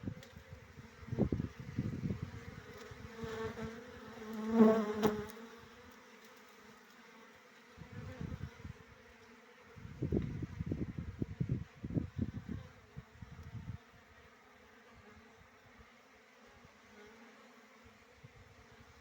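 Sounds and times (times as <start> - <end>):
bees buzzing: 0.1 - 10.1.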